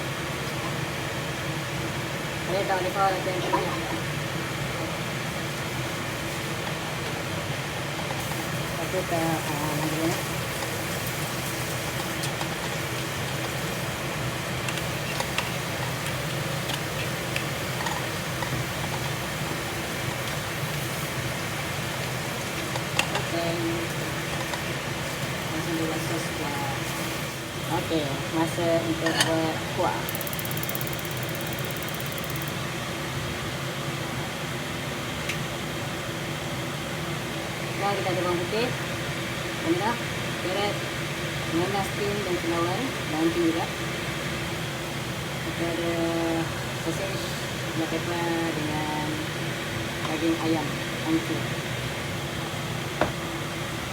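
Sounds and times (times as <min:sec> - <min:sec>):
exhaust fan humming: 0:00.0 - 0:53.9.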